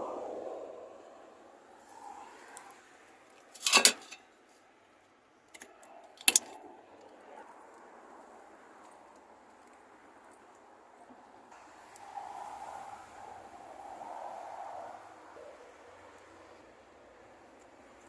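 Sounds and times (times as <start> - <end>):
small metal objects clattering: 3.5 - 4.2.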